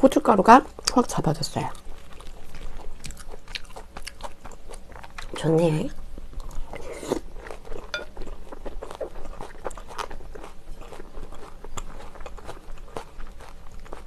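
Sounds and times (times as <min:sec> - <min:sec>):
close chewing with wet mouth sounds: 0:00.6 - 0:14.0
spoon clinking in glass bowl: 0:07.9 - 0:08.1.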